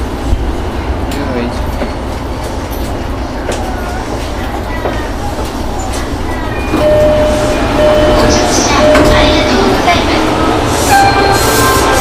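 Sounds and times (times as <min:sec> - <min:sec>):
train rumble inside carriage: 0:00.0 - 0:12.0
steady high tone: 0:06.4 - 0:12.0.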